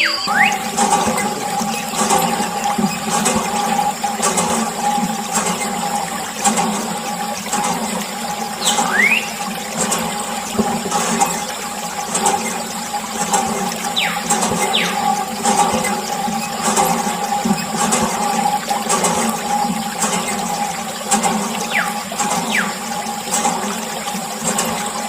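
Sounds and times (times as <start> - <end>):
water gushing and splashing: 0.0 - 25.0.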